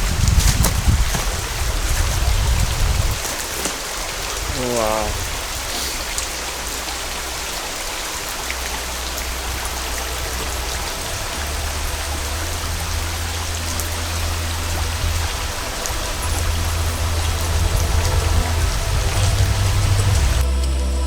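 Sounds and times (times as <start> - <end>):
waterfall rushing: 0.0 - 20.4
low rumble: 4.5 - 21.0.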